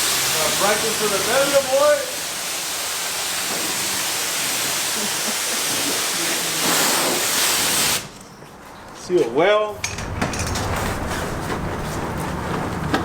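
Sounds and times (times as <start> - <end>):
pressure washer spraying water: 0.0 - 8.2.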